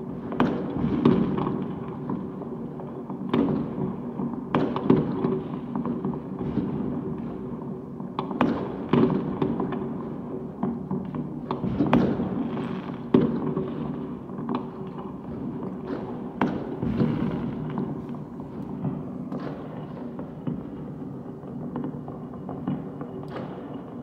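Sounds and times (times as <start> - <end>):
distant fireworks crackle and rumble: 0.0 - 24.0
sharp firework bangs: 15.8 - 20.7.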